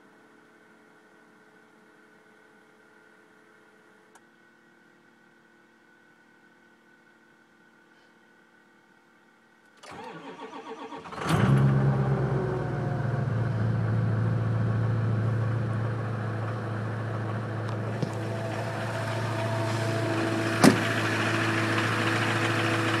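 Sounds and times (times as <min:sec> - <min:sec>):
diesel engine starting and idling: 0:09.8 - 0:23.0.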